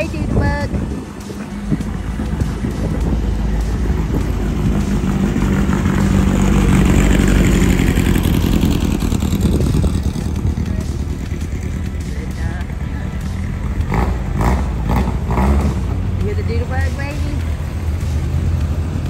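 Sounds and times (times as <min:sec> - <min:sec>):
car passing at low speed: 0:00.6 - 0:12.6.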